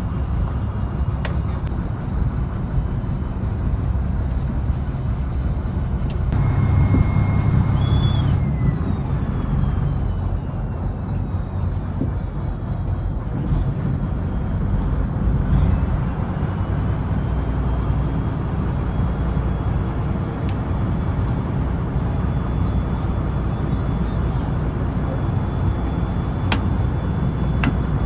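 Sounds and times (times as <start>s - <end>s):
diesel engine rumbling: 0.0s - 28.0s
faint high whine: 1.8s - 13.2s.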